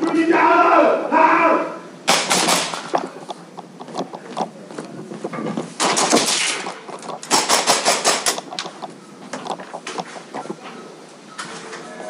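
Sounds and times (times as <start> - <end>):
automatic gunfire bursts: 2.0 - 3.1, 5.8 - 8.5.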